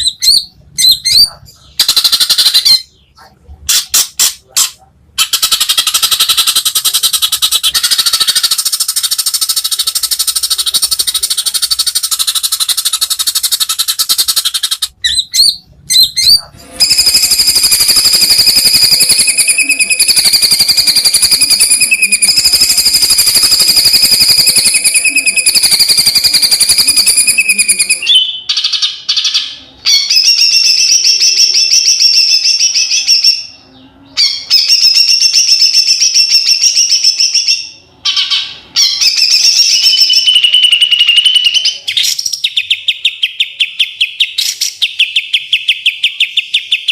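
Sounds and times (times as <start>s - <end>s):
bird singing rapid trills: 5.2s - 28.7s.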